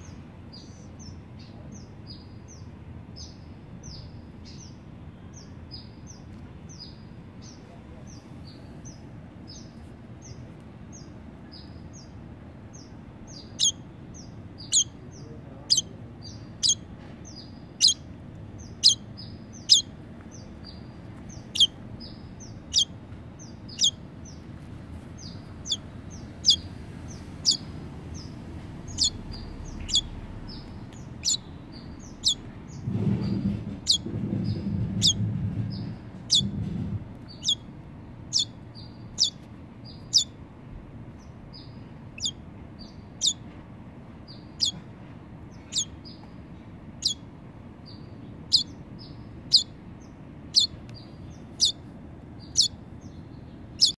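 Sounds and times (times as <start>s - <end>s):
bird chirping: 0.0s - 40.4s, 41.0s - 43.6s, 44.2s - 44.9s, 45.5s - 53.9s
low rumble: 18.2s - 39.2s.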